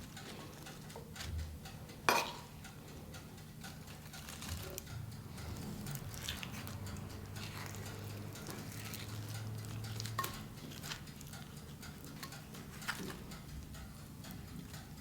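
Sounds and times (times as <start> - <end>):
kitchen things tapping and clicking: 0.0 - 2.6, 9.9 - 14.8.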